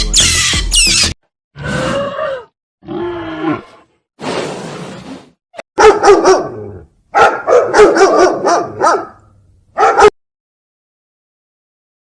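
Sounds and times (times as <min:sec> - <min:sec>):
dog barking: 0:05.8 - 0:10.2.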